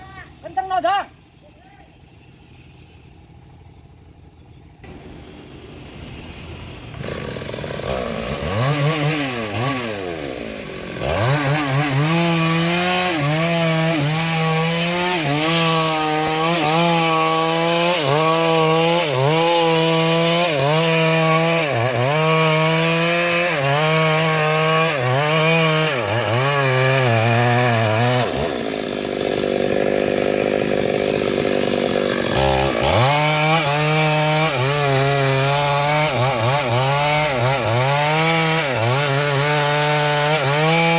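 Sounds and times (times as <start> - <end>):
chainsaw cutting into trunk: 5.8 - 40.9.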